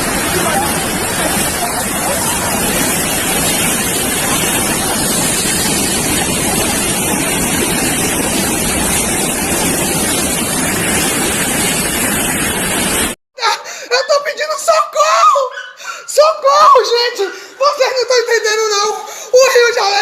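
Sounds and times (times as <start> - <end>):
river torrent rushing: 0.0 - 13.2.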